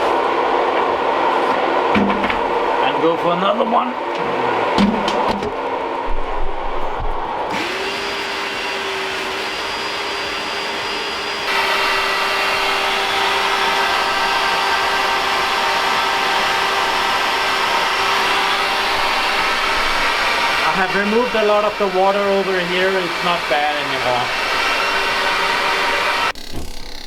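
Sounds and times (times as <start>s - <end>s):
wet vacuum cleaner sucking water: 7.3s - 27.0s.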